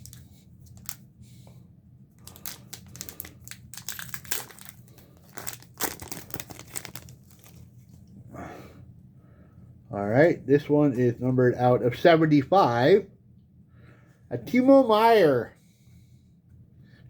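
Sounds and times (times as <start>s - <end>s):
foil wrapper crinkling and tearing: 0.0s - 1.0s, 2.2s - 8.0s.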